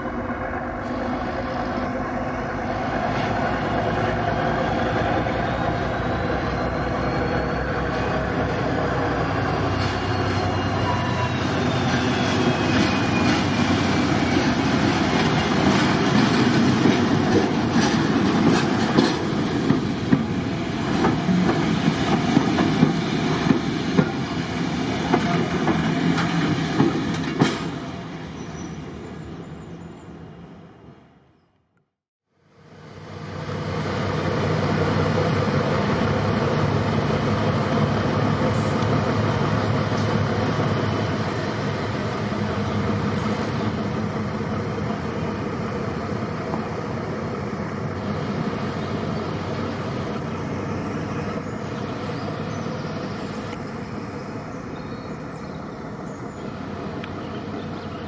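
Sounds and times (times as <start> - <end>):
locomotive engine running: 0.0 - 30.9, 32.6 - 58.0
train wheels clattering over rail joints: 11.8 - 28.0.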